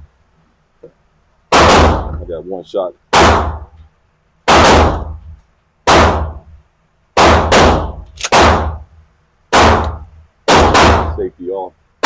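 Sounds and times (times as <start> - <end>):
loud gunshots with echo: 1.5 - 2.2, 3.1 - 3.7, 4.5 - 5.2, 5.8 - 6.4, 7.2 - 8.8, 9.5 - 11.3.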